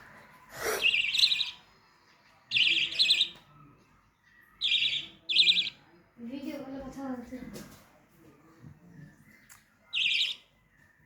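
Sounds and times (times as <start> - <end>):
bird chirping: 0.3 - 6.0, 9.1 - 11.0.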